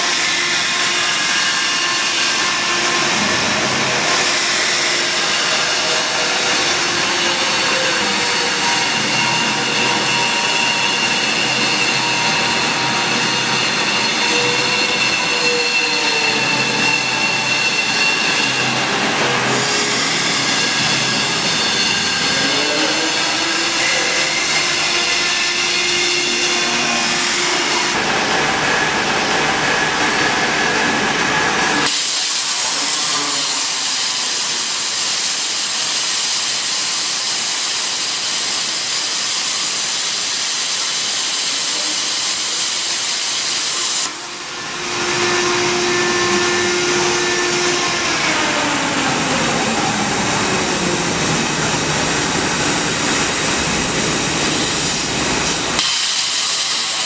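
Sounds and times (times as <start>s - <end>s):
plasma arc hissing: 31.9s - 44.2s, 54.3s - 57.0s.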